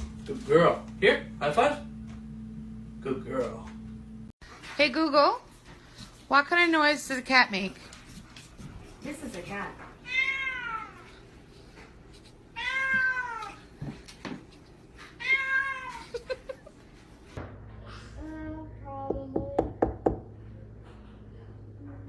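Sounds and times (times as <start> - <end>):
cat meowing: 10.0 - 11.1, 12.6 - 13.7, 15.2 - 16.1.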